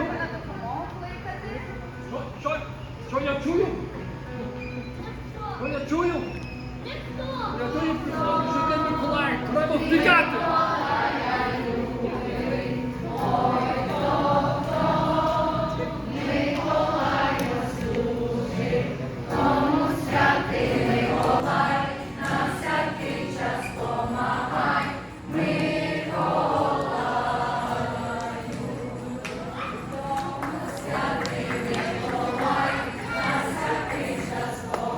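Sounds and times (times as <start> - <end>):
choir singing: 7.7 - 34.9.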